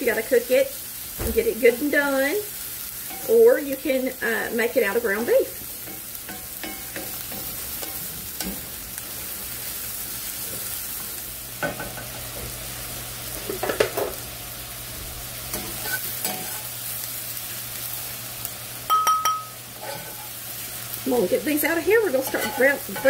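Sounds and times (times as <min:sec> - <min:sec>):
vegetables sizzling in oil: 0:00.0 - 0:23.0
spoon scraping and knocking pan: 0:05.1 - 0:08.8, 0:15.5 - 0:16.7, 0:18.9 - 0:20.3, 0:22.1 - 0:23.0.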